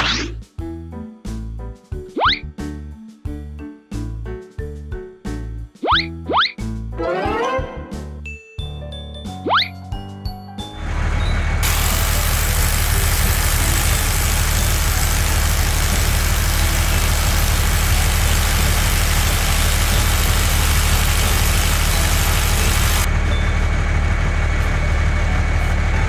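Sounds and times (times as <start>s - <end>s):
heavy vehicle engine idling: 10.9s - 26.0s.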